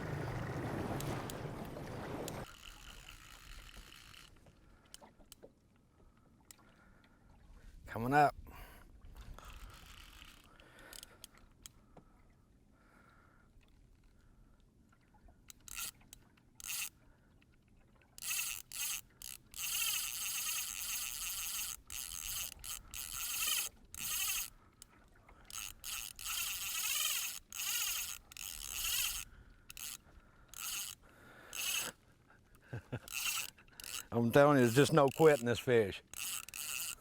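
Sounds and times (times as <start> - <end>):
fishing reel drag buzzing: 0.1 - 5.1, 9.3 - 11.6, 15.5 - 17.0, 18.2 - 24.6, 25.4 - 32.0, 32.8 - 37.0.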